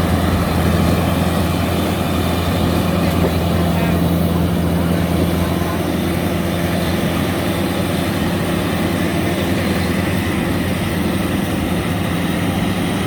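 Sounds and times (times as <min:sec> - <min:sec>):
combine harvester diesel engine: 0:00.0 - 0:13.0.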